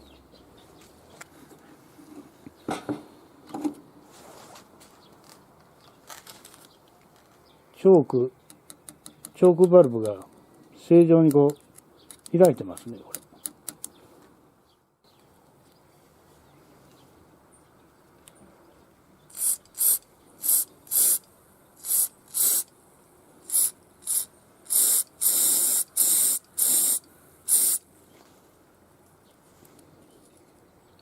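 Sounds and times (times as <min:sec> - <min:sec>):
spray nozzle hissing bursts: 0:19.3 - 0:22.7, 0:23.4 - 0:27.8.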